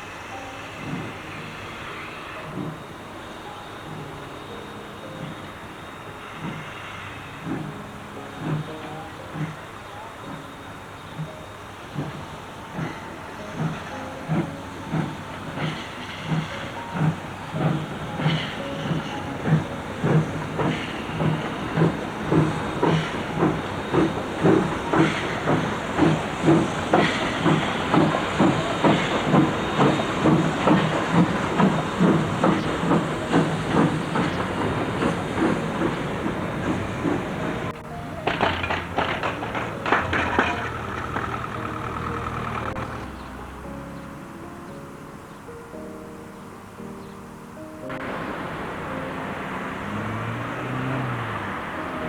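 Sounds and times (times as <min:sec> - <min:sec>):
steam hissing: 0:00.0 - 0:43.8, 0:47.9 - 0:52.0
steam locomotive exhaust beats: 0:00.0 - 0:44.9, 0:47.5 - 0:52.0
irregular knocks: 0:13.6 - 0:43.2.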